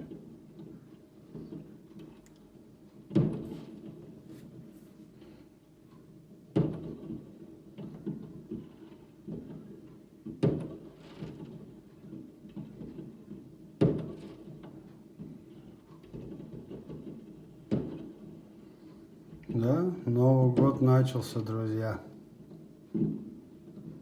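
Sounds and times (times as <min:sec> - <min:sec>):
fireworks pops and crackles: 0:07.8 - 0:18.4.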